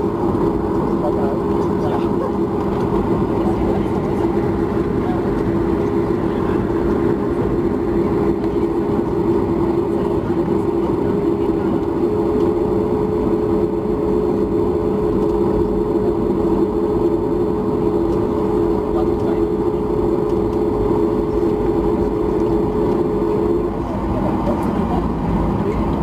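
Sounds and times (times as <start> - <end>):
aircraft cabin engine drone: 0.0 - 26.0.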